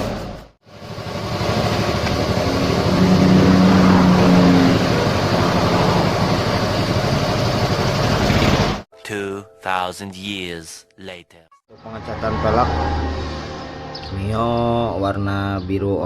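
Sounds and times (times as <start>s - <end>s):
vehicle engine running: 0.1s - 8.8s
hum: 0.7s - 8.8s.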